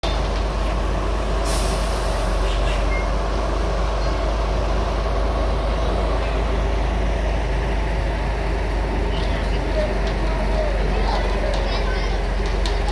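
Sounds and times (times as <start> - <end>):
diesel engine rumbling: 0.0 - 12.9
air hiss: 1.4 - 2.8.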